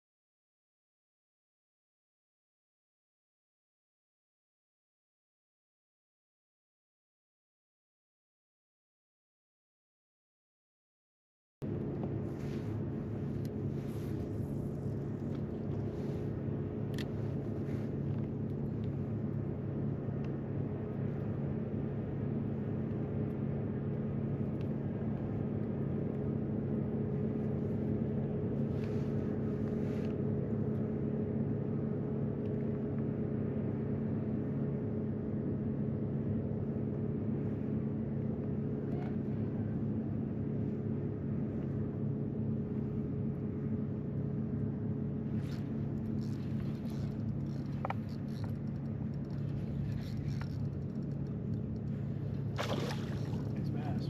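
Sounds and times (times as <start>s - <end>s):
water noise: 11.8s - 19.9s, 45.3s - 54.0s.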